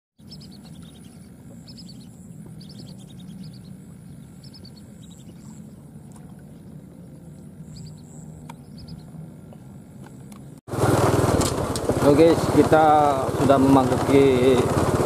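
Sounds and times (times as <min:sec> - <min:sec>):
small bird high chirps: 0:00.2 - 0:05.8, 0:06.5 - 0:09.2.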